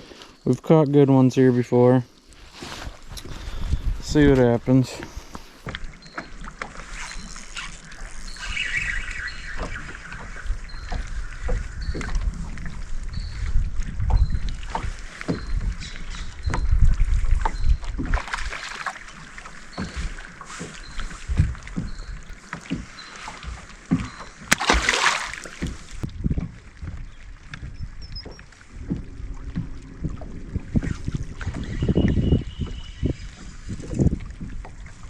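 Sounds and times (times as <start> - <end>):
wind rumbling on microphone: 2.4 - 24.2, 25.6 - 35.0
loud hissing splash: 24.6 - 25.5.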